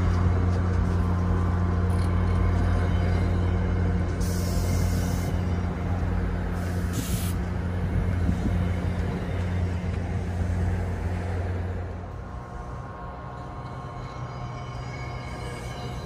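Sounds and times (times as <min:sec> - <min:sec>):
train cars rumbling past: 0:00.0 - 0:16.0
air hisses: 0:06.6 - 0:07.4.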